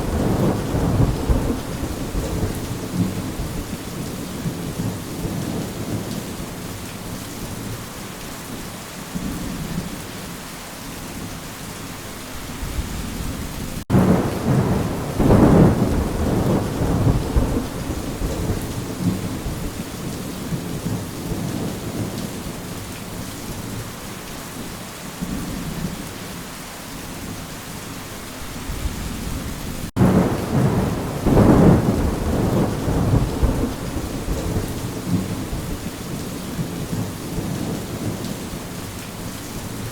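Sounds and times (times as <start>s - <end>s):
thunder rumbling: 0.0s - 6.2s, 12.6s - 22.2s, 28.7s - 38.7s
steady rain: 0.0s - 39.9s.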